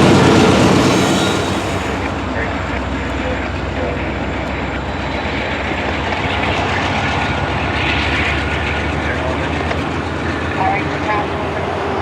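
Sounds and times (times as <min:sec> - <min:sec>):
freight train wheels on rail: 0:00.0 - 0:12.0.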